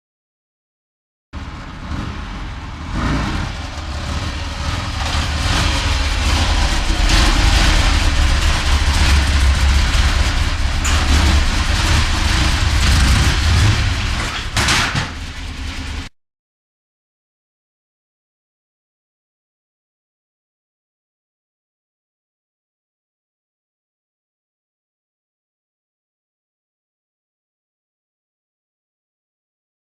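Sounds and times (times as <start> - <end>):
road noise: 1.4 - 16.1
vehicle engine rumble: 1.4 - 16.1.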